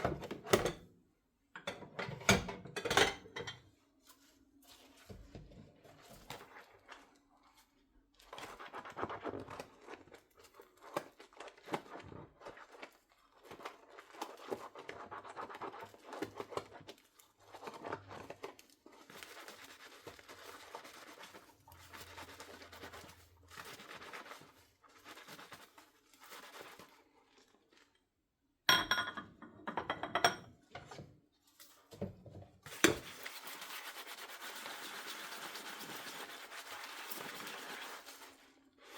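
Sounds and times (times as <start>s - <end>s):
dishes clinking: 1.6s - 3.6s, 28.7s - 30.5s
sponge scrubbing dishes: 1.8s - 27.9s, 29.3s - 38.9s.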